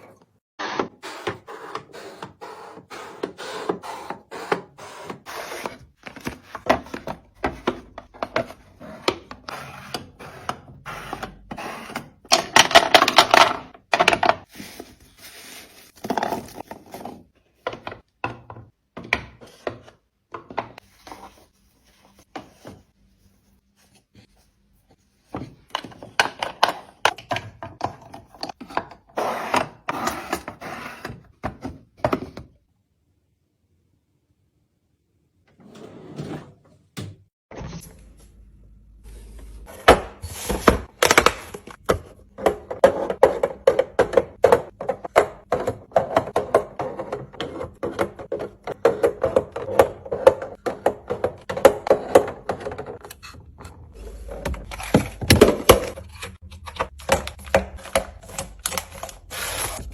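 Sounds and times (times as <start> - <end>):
groceries being handled: 12.9 - 17.5.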